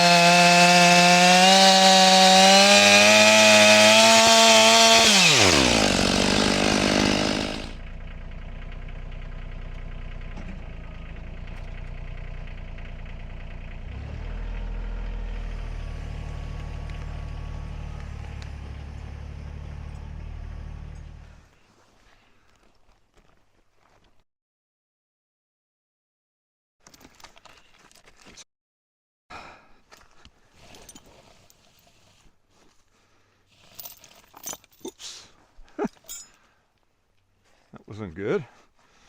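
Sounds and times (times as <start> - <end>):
chainsaw engine running: 0.0 - 7.8.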